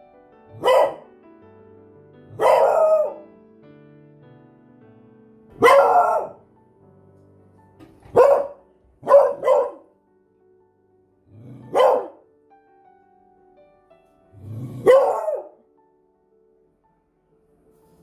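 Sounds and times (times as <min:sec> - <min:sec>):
dog barking: 0:00.5 - 0:01.1, 0:02.3 - 0:03.2, 0:05.6 - 0:06.4, 0:08.1 - 0:09.9, 0:11.7 - 0:12.2, 0:14.8 - 0:15.6.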